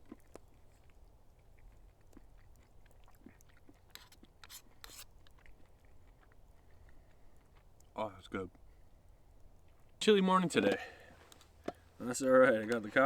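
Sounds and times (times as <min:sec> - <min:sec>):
person chewing: 0:00.0 - 0:10.0.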